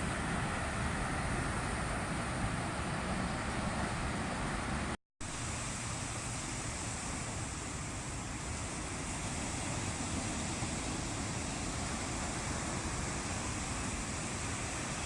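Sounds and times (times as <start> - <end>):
surf washing on beach: 0.0 - 15.0.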